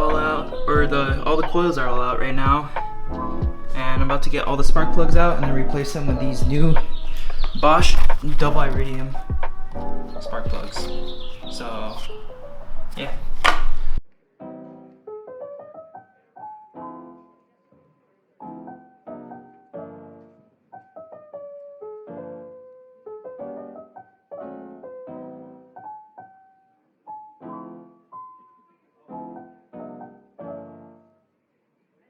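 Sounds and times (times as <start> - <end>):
gentle piano music: 0.0 - 31.4.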